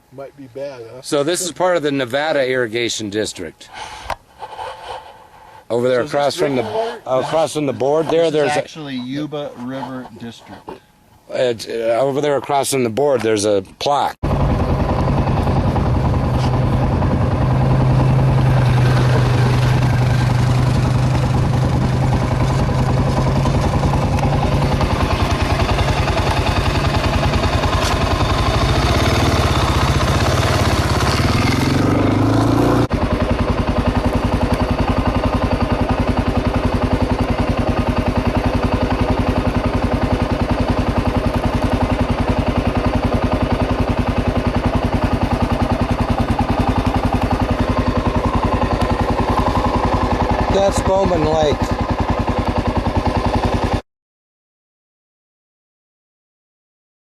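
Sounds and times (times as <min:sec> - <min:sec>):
motorcycle engine running: 0:14.2 - 0:53.8.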